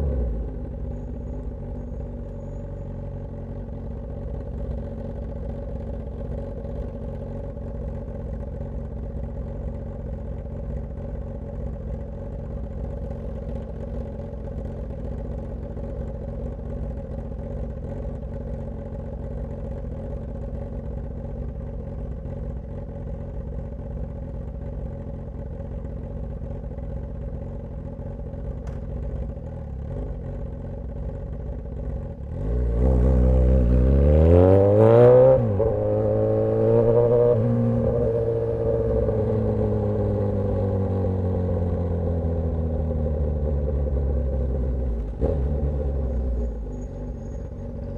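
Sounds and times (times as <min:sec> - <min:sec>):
motorcycle engine revving: 0:32.0 - 0:47.9.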